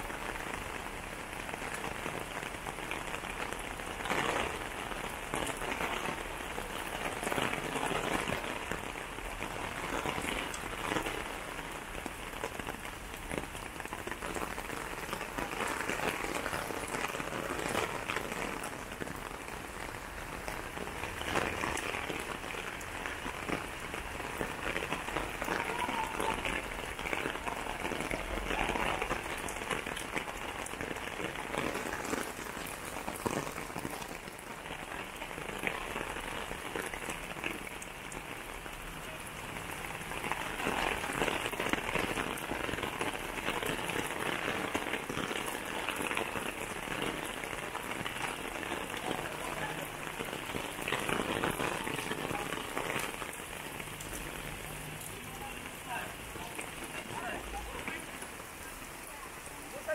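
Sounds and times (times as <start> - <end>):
rain patter: 0.0 - 59.9.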